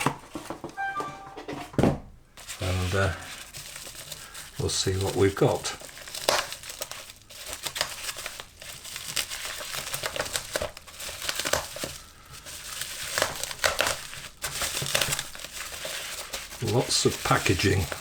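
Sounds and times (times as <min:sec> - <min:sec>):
plastic packaging crinkling: 0:02.4 - 0:18.0.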